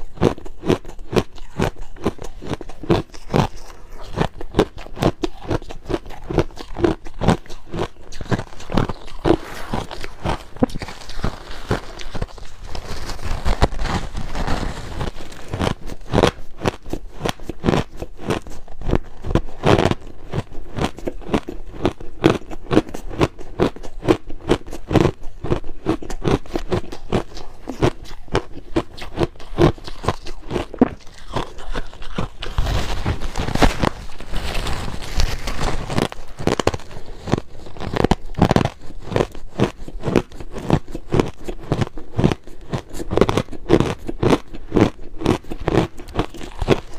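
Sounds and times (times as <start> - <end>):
chewing crushed ice: 0.0 - 46.9.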